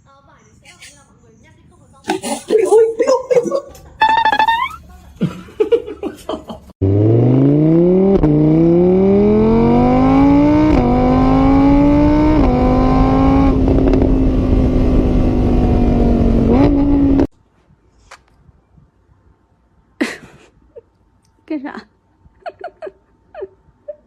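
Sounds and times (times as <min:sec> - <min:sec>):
car engine accelerating: 0:06.8 - 0:17.3.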